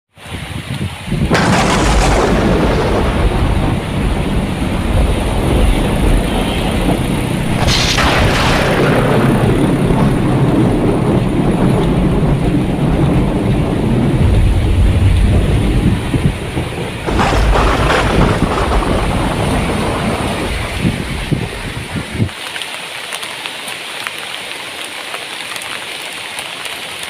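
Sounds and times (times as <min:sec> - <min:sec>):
steady rain: 0:00.1 - 0:27.0
thunder rumbling: 0:01.1 - 0:22.4.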